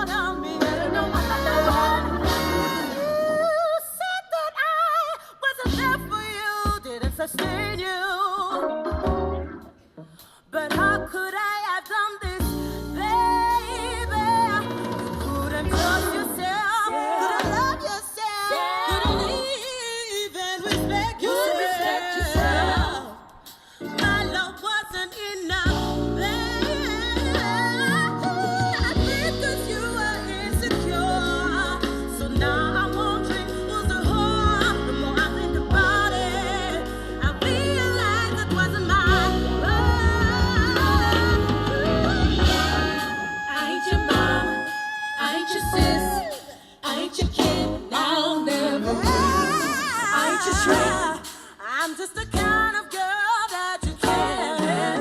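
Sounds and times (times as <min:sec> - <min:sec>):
heavy bass line with beat: 0:00.0 - 0:03.0, 0:15.3 - 0:16.3, 0:18.9 - 0:19.5, 0:22.2 - 0:23.1, 0:28.8 - 0:43.1, 0:45.7 - 0:46.3, 0:50.4 - 0:51.3
person singing: 0:00.0 - 0:09.0, 0:10.0 - 0:55.0
pop song through speaker: 0:00.0 - 0:55.0.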